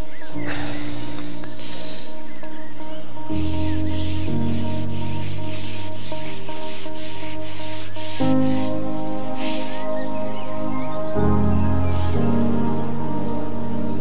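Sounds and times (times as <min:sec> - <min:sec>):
background music with sustained chords: 0:00.0 - 0:14.0
rasping shaker-like pattern: 0:03.3 - 0:09.9.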